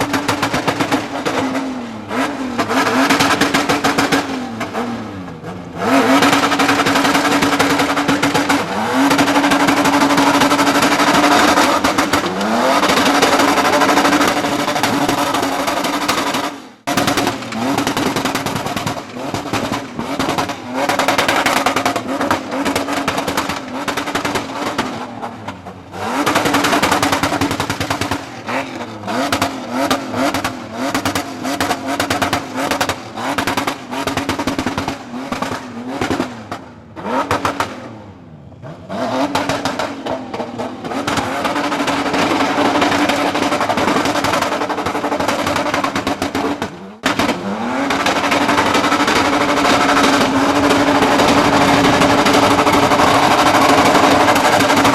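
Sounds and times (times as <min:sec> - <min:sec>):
car engine revving hard: 0:00.0 - 0:54.9.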